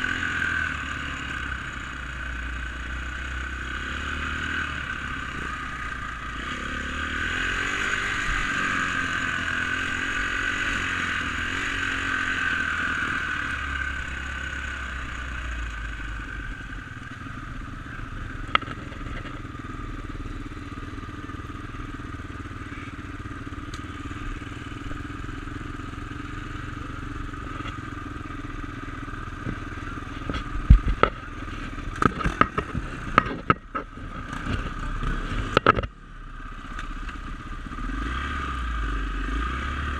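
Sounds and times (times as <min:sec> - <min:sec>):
dirt bike engine running: 0:00.0 - 0:39.9
sharp knocks and clatter: 0:18.5 - 0:19.4, 0:31.9 - 0:35.9.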